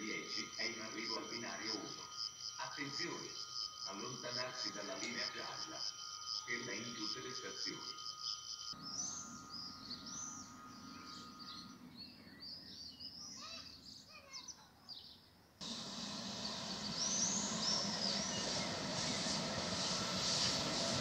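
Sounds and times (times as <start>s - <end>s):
faint outdoor background noise: 0.0s - 21.0s
small birds chirping: 8.0s - 21.0s
approaching train rumble: 15.6s - 21.0s.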